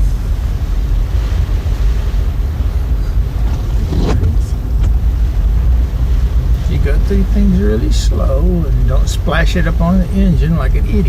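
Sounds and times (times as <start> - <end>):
car rumble: 0.0 - 11.0
rush of water: 0.0 - 11.0.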